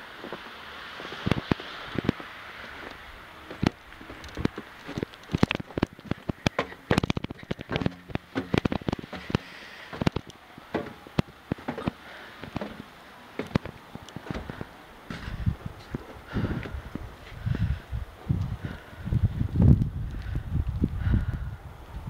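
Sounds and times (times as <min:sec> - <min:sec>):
faint steady hiss: 0:00.0 - 0:22.0
footsteps crunching in snow: 0:00.2 - 0:10.1.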